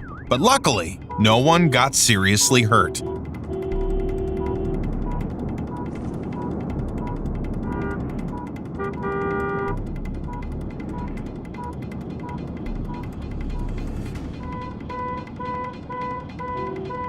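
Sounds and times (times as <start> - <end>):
rumble of vehicles: 0.0 - 17.0
car horn honking: 0.9 - 4.7.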